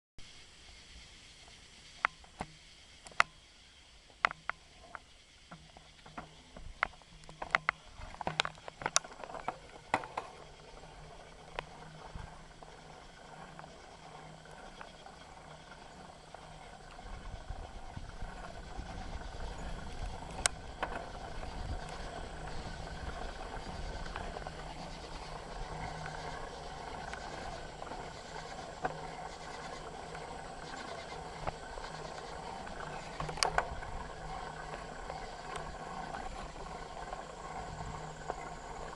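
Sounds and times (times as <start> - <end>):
bicycle tyres rolling: 0.3 - 38.9
bicycle clicks and rattles: 4.2 - 38.9.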